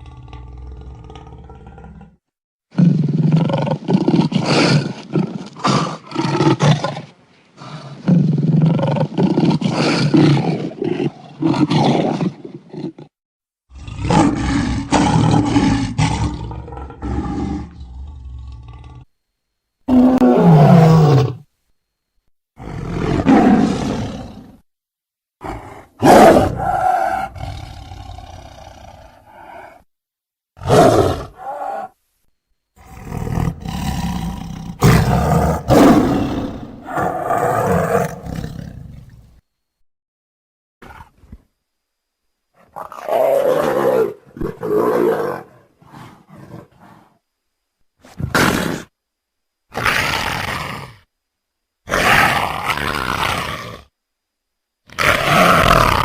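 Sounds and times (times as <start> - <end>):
tigers roaring: 0.0 - 2.2, 2.8 - 13.1, 13.7 - 19.1, 19.9 - 21.4, 22.6 - 24.6, 25.4 - 29.8, 30.6 - 32.0, 32.8 - 39.0, 42.8 - 47.1, 51.9 - 53.9, 54.9 - 56.0.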